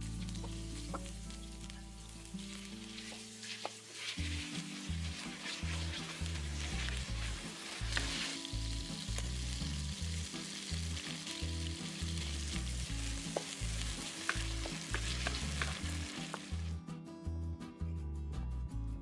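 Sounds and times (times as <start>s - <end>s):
food sizzling in oil: 0.0s - 16.7s
spatula scraping pan: 2.8s - 8.5s, 13.3s - 16.7s.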